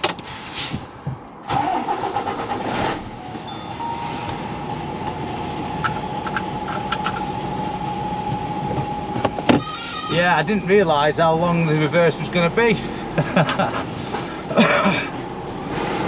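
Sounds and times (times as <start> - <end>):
diesel engine running: 1.4 - 16.0
steady high-pitched tone: 3.2 - 8.2.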